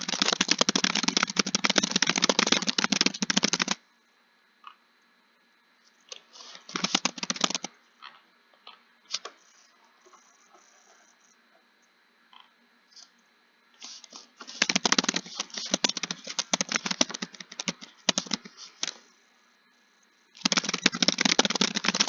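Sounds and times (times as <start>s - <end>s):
typing on computer keyboard: 0.0s - 3.8s, 6.7s - 7.7s, 14.5s - 19.0s, 20.4s - 22.0s.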